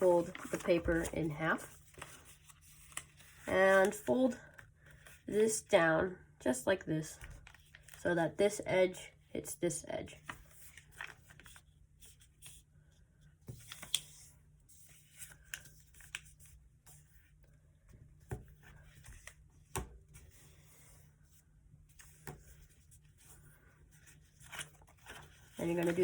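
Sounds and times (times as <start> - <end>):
paper being folded and creased: 0.0 - 5.2, 7.4 - 8.0, 10.2 - 12.7, 13.4 - 17.4, 21.9 - 26.0.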